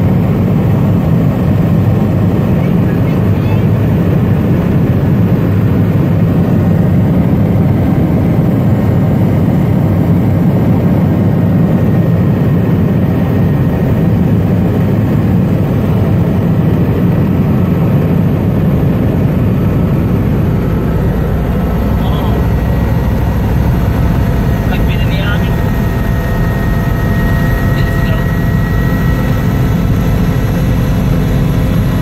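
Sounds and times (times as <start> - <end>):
helicopter cabin drone: 0.0 - 32.0.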